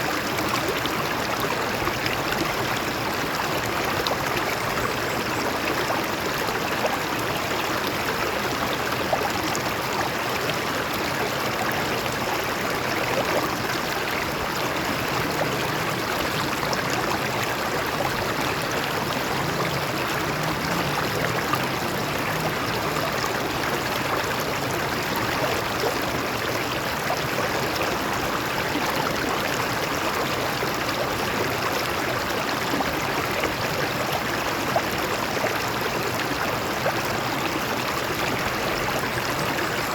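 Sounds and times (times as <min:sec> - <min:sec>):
stream water flowing over rocks: 0:00.0 - 0:39.9.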